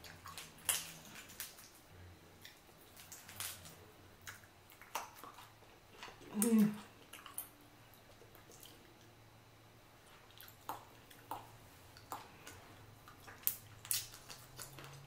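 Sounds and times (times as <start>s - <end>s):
wet chewing clicks and smacks: 0.0s - 9.2s, 10.0s - 15.0s.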